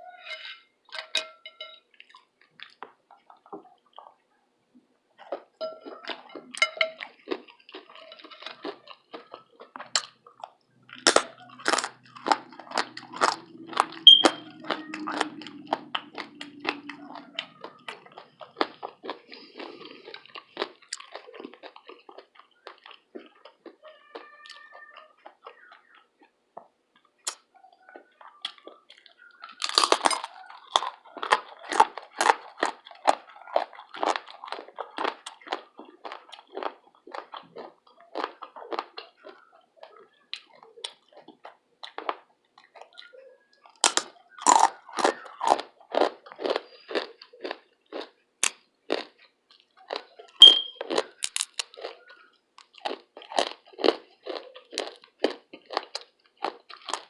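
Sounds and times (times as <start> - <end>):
crunchy chewing: 0.1 - 4.2, 5.2 - 57.0
loud crunchy bites: 6.1 - 24.2, 28.4 - 39.4, 43.8 - 52.0, 52.6 - 57.0.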